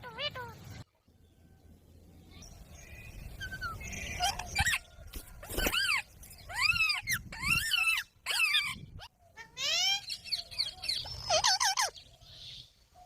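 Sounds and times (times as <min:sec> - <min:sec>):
parrot squawking: 0:05.6 - 0:10.2, 0:10.9 - 0:11.9.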